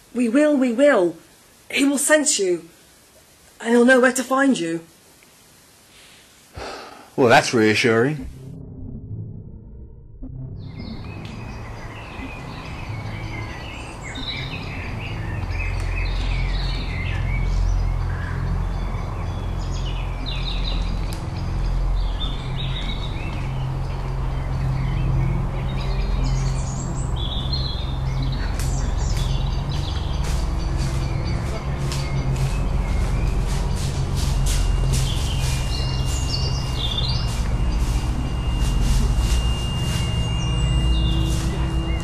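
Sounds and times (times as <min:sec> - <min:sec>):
low steady hum: 0:02.6 - 0:42.0
small birds chirping: 0:10.6 - 0:42.0.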